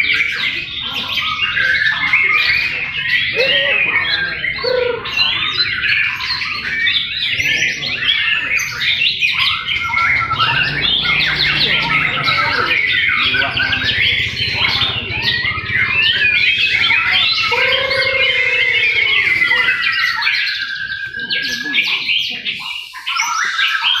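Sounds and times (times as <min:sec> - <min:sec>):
birds singing in chorus: 0:00.0 - 0:24.0
long bird trill: 0:08.5 - 0:21.2
drawn-out sliding bird call: 0:09.4 - 0:20.2.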